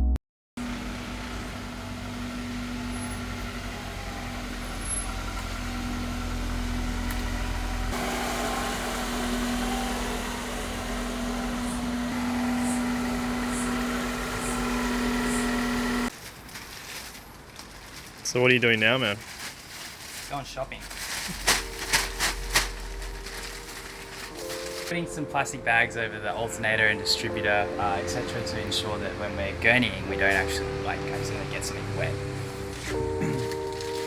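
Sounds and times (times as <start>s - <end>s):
car engine idling: 0.6s - 16.1s, 21.1s - 24.9s, 27.5s - 34.0s.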